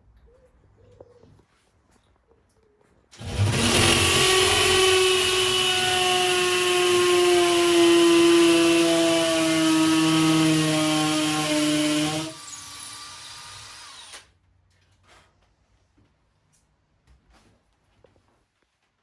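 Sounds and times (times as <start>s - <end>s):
power drill boring a hole: 3.2s - 14.3s.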